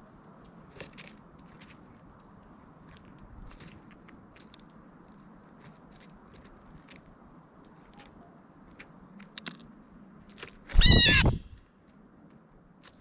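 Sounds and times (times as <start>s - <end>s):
loud bird call with bending pitch: 10.8s - 11.6s.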